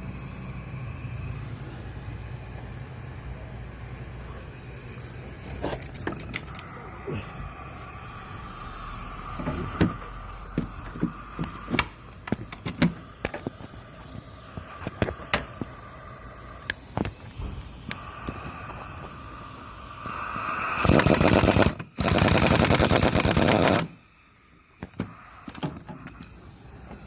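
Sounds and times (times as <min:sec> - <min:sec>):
sharp clicks and knocks: 0:09.4 - 0:13.6.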